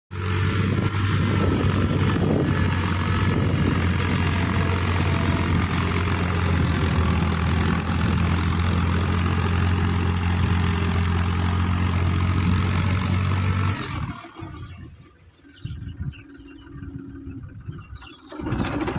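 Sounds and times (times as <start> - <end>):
tractor diesel engine running: 0.1 - 18.9.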